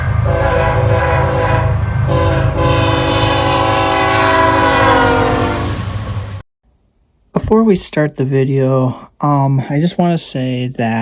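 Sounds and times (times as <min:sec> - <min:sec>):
locomotive air horn: 0:00.0 - 0:06.4
passing train rumble: 0:00.0 - 0:06.4.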